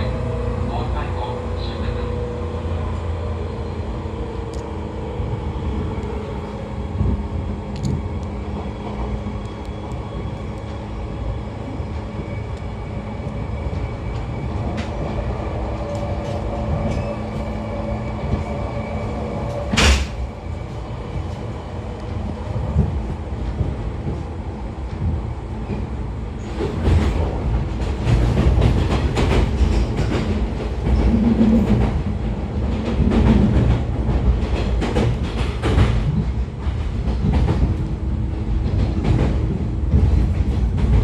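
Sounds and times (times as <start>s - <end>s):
wheel and track rumble: 0.0s - 41.0s.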